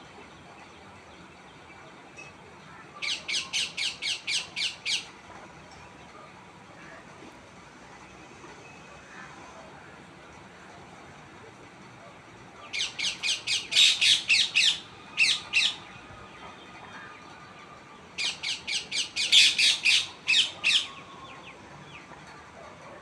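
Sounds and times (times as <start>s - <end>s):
parrot squawking: 12.8s - 15.8s, 18.2s - 20.9s.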